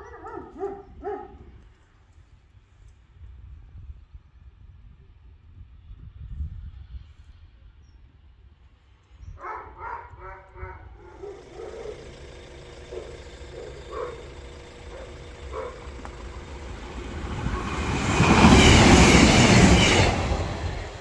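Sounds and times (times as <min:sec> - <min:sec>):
diesel train passing: 0:11.0 - 0:21.0.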